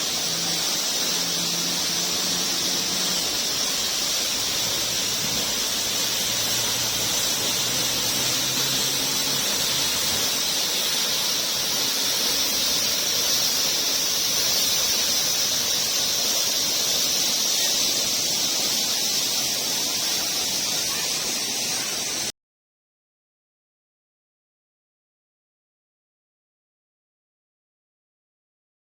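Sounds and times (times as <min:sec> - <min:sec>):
waterfall rushing: 0:00.0 - 0:22.3.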